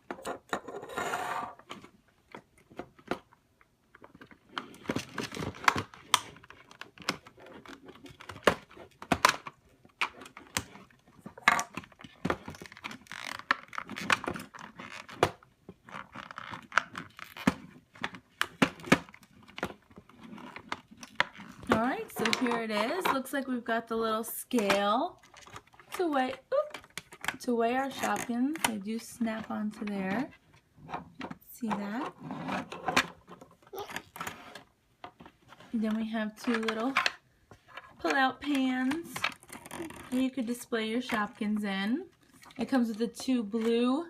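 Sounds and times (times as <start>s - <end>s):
packaging rustling and tearing: 4.0s - 22.4s, 39.3s - 40.1s.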